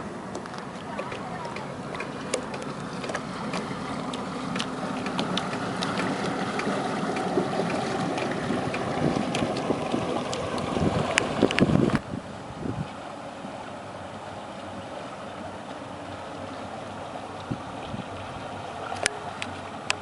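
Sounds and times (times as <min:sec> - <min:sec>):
boat engine running: 0:00.0 - 0:20.0
hull rushing through water: 0:00.0 - 0:20.0
wind buffeting microphone: 0:00.8 - 0:13.0, 0:17.4 - 0:20.0.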